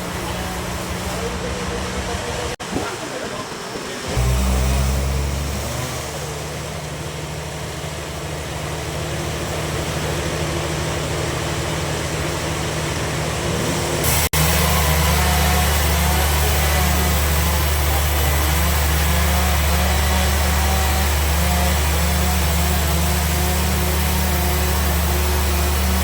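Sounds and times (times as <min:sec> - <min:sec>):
bandsaw machinery humming: 0:00.0 - 0:26.0.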